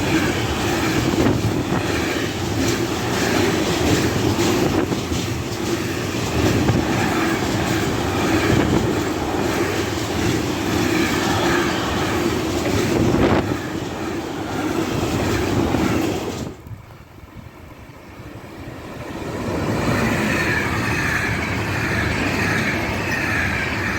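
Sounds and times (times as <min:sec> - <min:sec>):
train wheels clattering over rails: 0:00.0 - 0:16.6.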